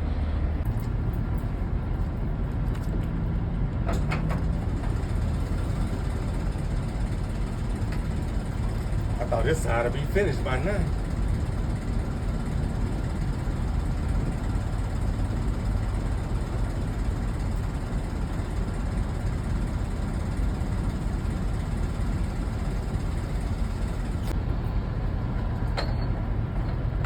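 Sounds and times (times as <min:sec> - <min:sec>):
diesel truck engine idling: 0:04.0 - 0:25.3.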